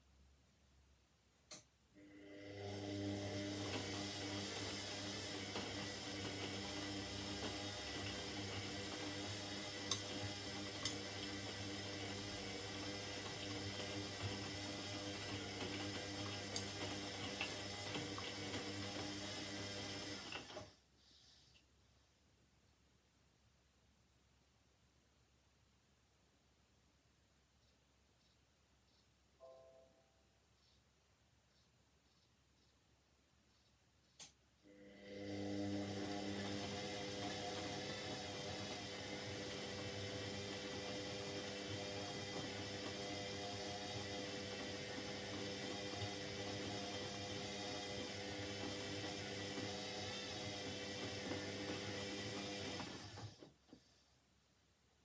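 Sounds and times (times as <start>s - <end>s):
washing machine hum: 2.0s - 20.8s, 34.7s - 54.0s
small ticks: 27.6s - 29.1s, 31.5s - 32.8s.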